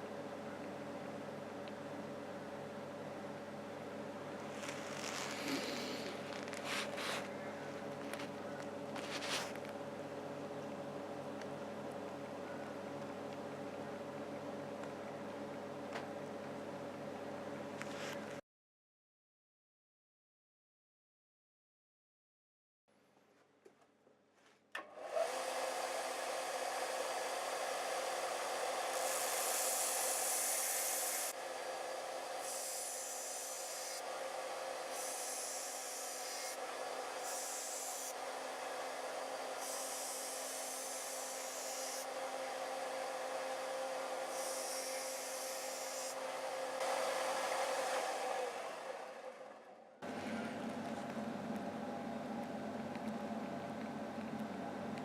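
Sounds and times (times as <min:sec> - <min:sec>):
belt sander running: 0:25.0 - 0:50.2
blade grinding on sanding belt: 0:28.9 - 0:31.4, 0:34.8 - 0:38.2, 0:39.0 - 0:42.5, 0:43.7 - 0:46.9.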